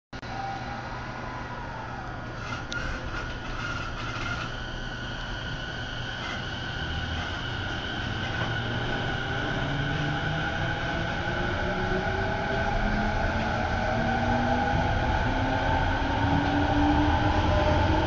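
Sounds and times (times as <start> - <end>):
rising motor whine: 0.2 - 3.4
train running rumble: 2.2 - 18.0.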